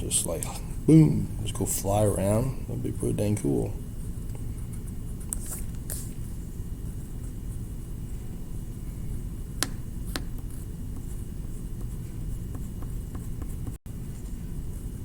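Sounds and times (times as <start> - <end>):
low rumbling room noise: 0.0 - 15.0.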